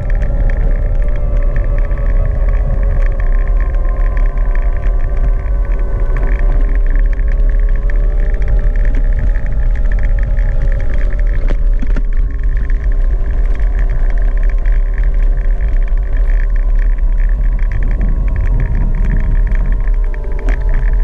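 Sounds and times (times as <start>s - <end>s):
electric motor whine: 0.0s - 21.0s
wind rumble on microphone: 0.0s - 21.0s.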